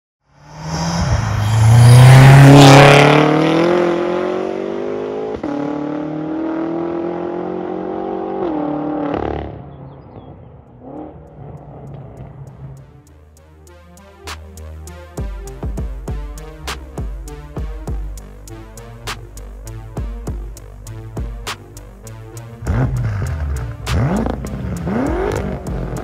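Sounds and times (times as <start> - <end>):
car engine accelerating hard: 0.4 - 12.9, 22.6 - 26.0.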